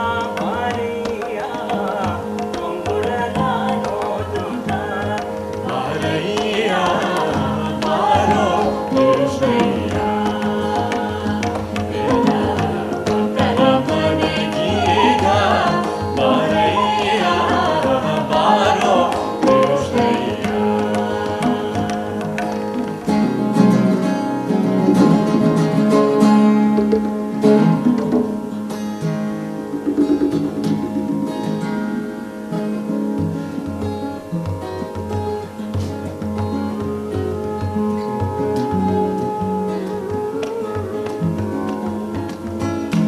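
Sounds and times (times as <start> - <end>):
guitar: 0.0 - 43.0
tabla: 0.0 - 43.0
flute melody: 2.8 - 23.0, 35.8 - 43.0.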